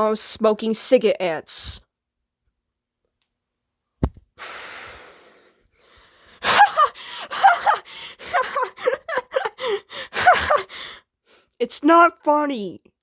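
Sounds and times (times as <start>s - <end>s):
gasping breath: 4.4s - 8.9s, 9.5s - 11.0s
person laughing hard: 6.4s - 10.6s.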